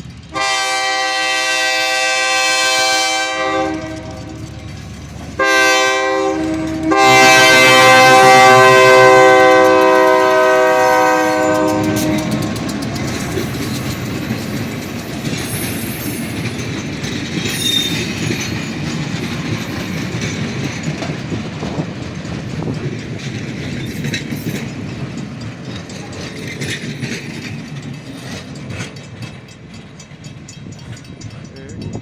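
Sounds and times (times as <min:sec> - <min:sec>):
train rumble: 0:00.0 - 0:32.0
wheels clacking over rail joints: 0:00.0 - 0:32.0
wheel squeal: 0:11.8 - 0:19.0.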